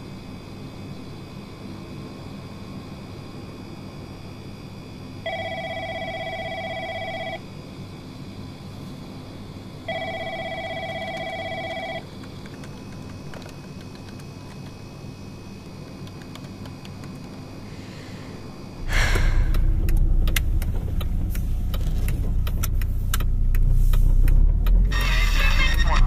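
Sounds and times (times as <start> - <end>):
telephone ringing: 5.2 - 7.5, 9.8 - 12.1.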